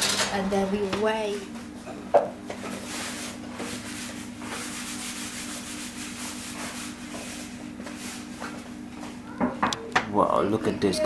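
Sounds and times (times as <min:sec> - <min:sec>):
rough rubbing noise: 0:02.8 - 0:08.2.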